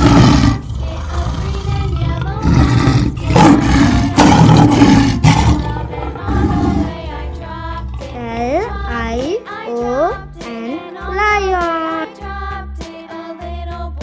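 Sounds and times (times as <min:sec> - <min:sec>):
lion roaring: 0:00.0 - 0:07.1.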